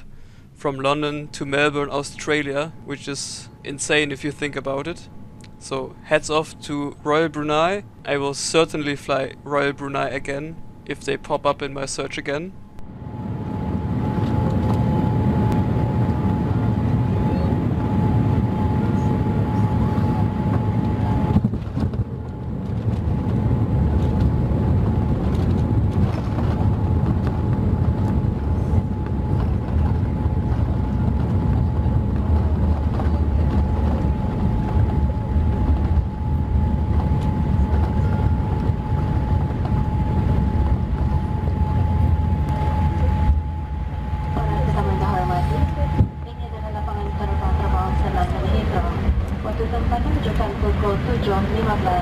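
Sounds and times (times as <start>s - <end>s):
deep rumble of airflow and engines: 0.0s - 52.0s
thin steady hum: 26.6s - 52.0s.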